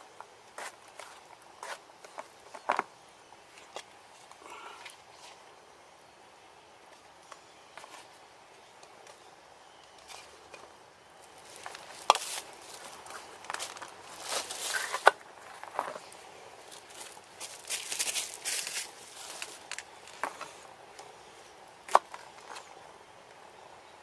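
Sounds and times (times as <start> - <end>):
rustling and handling noises: 6.9 - 23.5.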